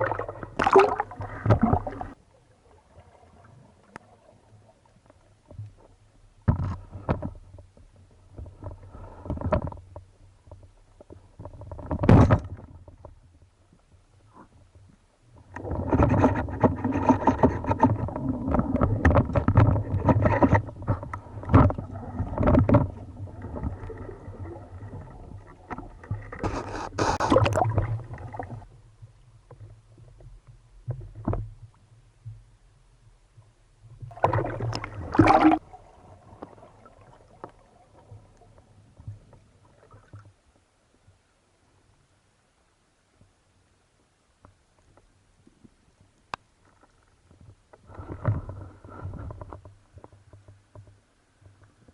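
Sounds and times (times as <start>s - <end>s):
water splashing and sloshing: 0.0s - 41.2s, 44.4s - 51.9s
knocks and scrapes: 6.4s - 13.2s, 15.4s - 28.7s, 46.7s - 51.7s.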